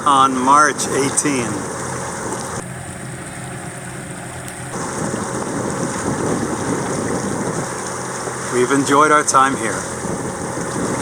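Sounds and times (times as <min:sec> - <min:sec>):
low engine hum: 0:00.0 - 0:11.0
steady rushing noise: 0:04.7 - 0:11.0.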